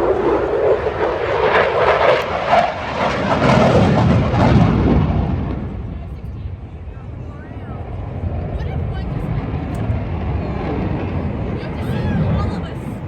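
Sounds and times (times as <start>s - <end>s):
airplane engine rush: 0.0s - 13.0s.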